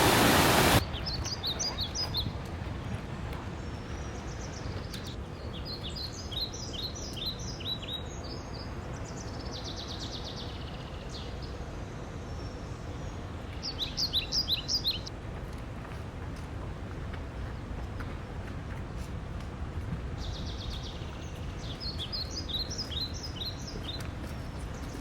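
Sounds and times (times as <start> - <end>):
songbirds singing: 0.1 - 11.7, 12.3 - 15.1, 20.2 - 25.0.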